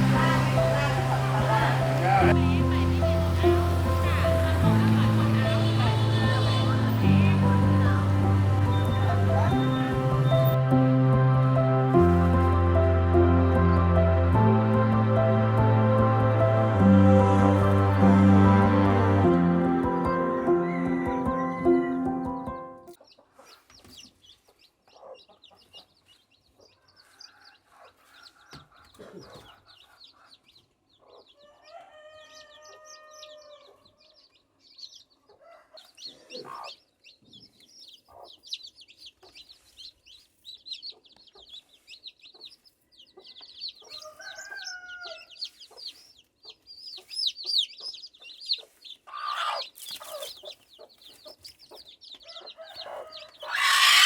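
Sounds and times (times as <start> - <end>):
rooster crowing: 0.0 - 2.4, 31.4 - 33.8, 44.0 - 45.4, 52.3 - 54.0
chickens clucking: 0.0 - 10.6, 23.0 - 34.1, 35.2 - 44.9, 45.5 - 54.0
chicks cheeping: 0.0 - 10.6, 19.9 - 54.0.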